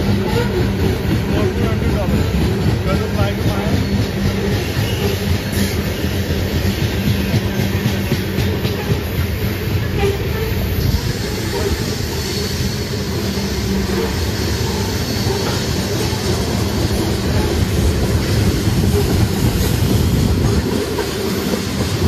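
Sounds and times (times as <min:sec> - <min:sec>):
train wheels rumbling on track: 0:00.0 - 0:22.0
faint high wheel squeal: 0:03.6 - 0:16.4.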